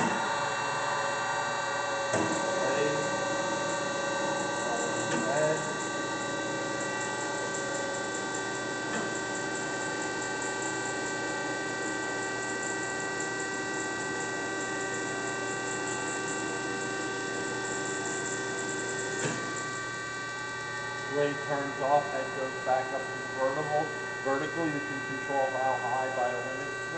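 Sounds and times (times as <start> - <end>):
band saw whine: 0.0 - 26.9.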